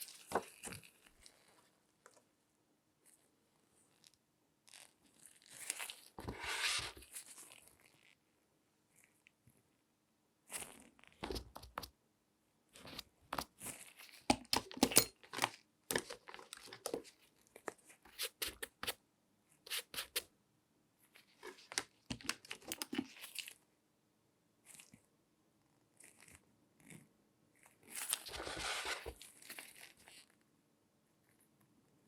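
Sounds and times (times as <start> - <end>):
crinkling and scratching handling: 0.0 - 2.3, 3.0 - 8.2, 12.7 - 19.0, 21.0 - 23.6, 26.0 - 30.4.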